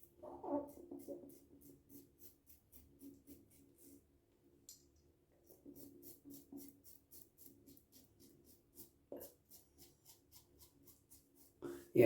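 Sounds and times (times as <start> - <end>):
razor scraping through stubble: 5.5 - 11.6.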